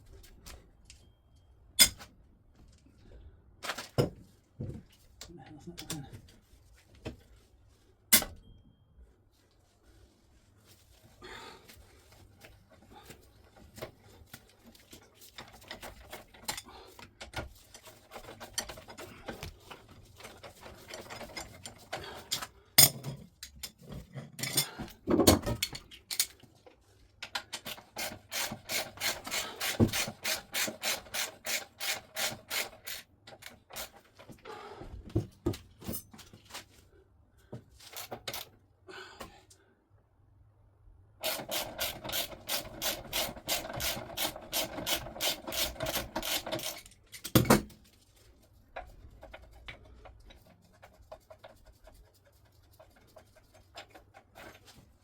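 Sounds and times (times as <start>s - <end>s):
tools clinking on metal: 22.3s - 24.8s.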